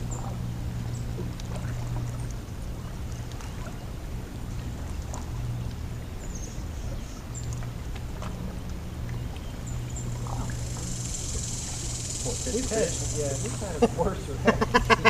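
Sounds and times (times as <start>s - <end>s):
boat motor humming: 0.0s - 15.0s
high hissing buzz: 10.2s - 15.0s.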